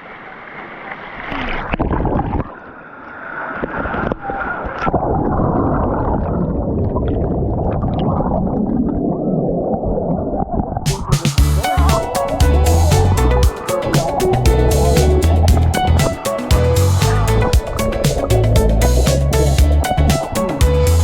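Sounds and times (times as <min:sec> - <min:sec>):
water rushing in waterfall pool: 0:10.9 - 0:20.4.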